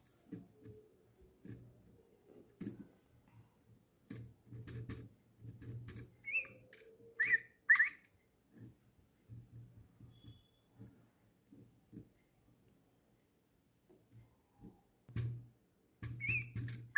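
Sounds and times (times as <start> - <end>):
toy bird electronic chirps: 6.2 - 6.6, 7.2 - 8.0, 16.2 - 16.6.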